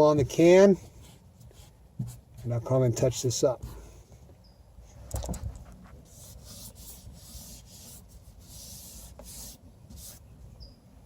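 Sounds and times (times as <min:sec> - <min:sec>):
rubbing or brushing noises: 0:05.4 - 0:10.2.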